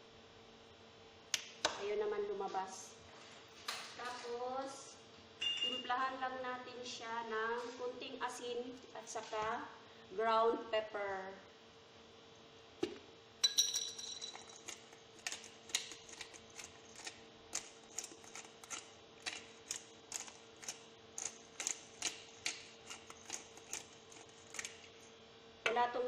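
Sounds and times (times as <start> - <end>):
faint steady hum: 0.0 - 26.0
ringing clink: 13.4 - 14.4.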